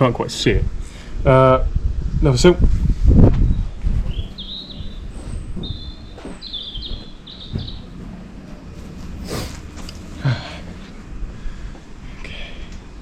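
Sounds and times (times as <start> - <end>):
faint low hum: 0.6 - 13.0
small bird chirping: 3.5 - 8.0.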